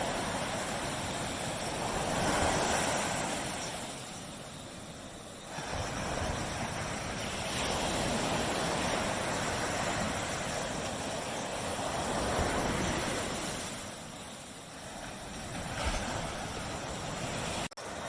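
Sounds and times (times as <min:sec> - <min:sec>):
waves washing up beach: 0:00.0 - 0:18.0.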